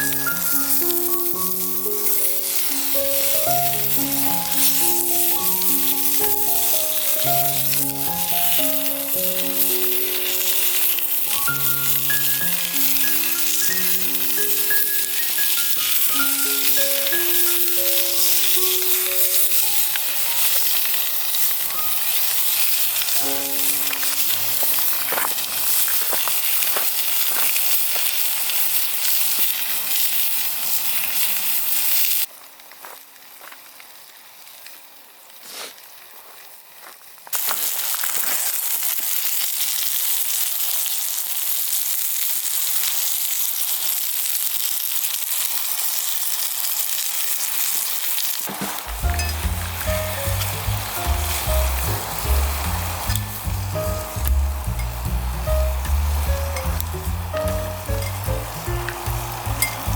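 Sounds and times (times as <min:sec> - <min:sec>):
soft musical melody: 0:00.0 - 0:21.0, 0:21.8 - 0:22.3, 0:23.0 - 0:25.1, 0:48.6 - 0:59.9
food sizzling in a pan: 0:00.0 - 0:59.9.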